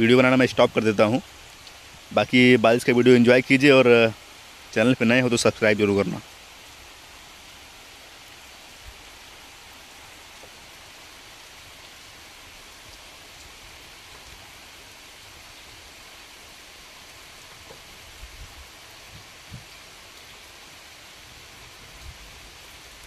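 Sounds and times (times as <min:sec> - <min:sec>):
steady rain falling: 0:00.0 - 0:23.0
faint drip ticks: 0:01.5 - 0:02.1, 0:10.1 - 0:10.8, 0:11.4 - 0:16.4.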